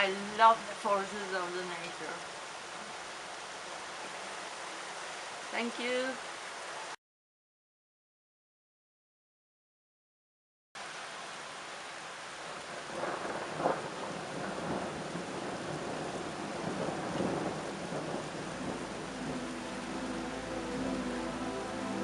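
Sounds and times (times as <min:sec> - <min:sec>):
heavy rain: 0:00.0 - 0:07.0, 0:10.8 - 0:22.0
thunder rumbling: 0:12.8 - 0:22.0
thunder clap: 0:12.9 - 0:21.2
music: 0:18.9 - 0:22.0.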